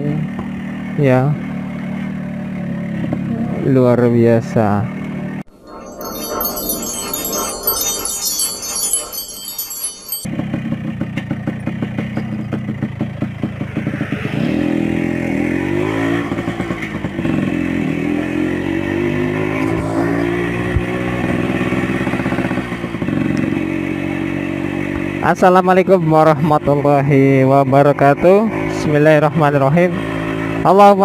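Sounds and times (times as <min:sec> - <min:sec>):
motorcycle engine accelerating: 0:00.2 - 0:03.9, 0:10.3 - 0:31.0
tinkling chime: 0:05.5 - 0:10.3.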